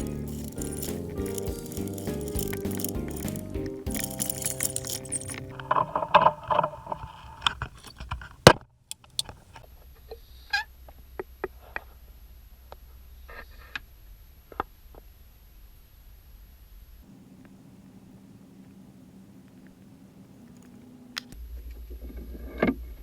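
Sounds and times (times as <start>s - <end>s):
music: 0.0s - 5.7s.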